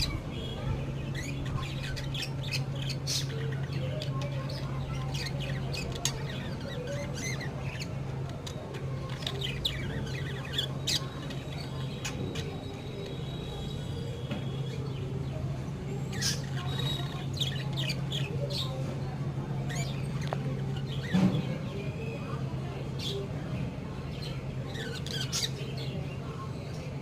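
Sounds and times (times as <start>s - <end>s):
budgerigars chirping and squawking: 0.0s - 14.8s, 16.0s - 18.8s, 24.2s - 26.0s.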